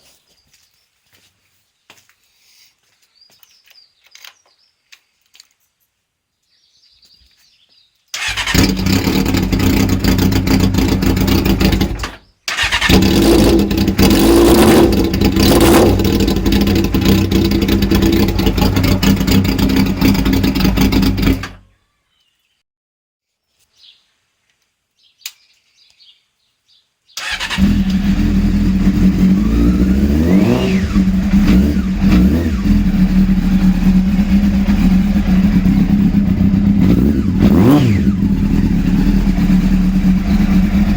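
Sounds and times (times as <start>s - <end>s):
motorcycle engine revving: 8.2s - 21.6s, 27.2s - 40.9s.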